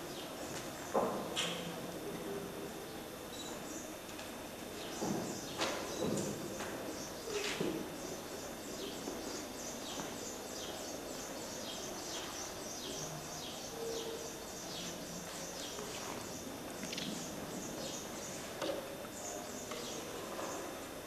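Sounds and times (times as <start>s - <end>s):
bird-like chirping: 9.6s - 18.1s.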